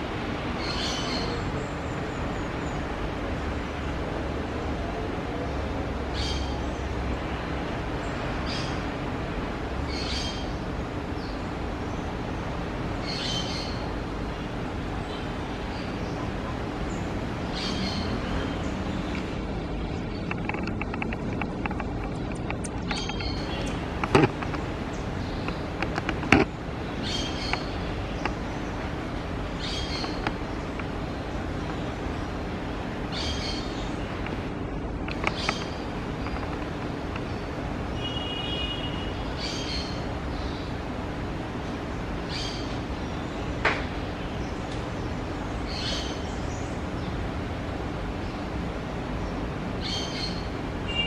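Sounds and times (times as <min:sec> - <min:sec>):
birds chirping: 0:00.0 - 0:51.0
steady low rumble: 0:13.8 - 0:37.9.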